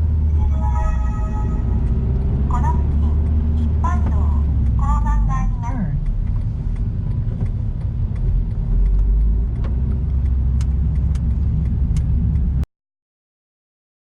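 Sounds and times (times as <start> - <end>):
car road noise: 0.0 - 12.7
rain ticking on car: 2.6 - 12.6.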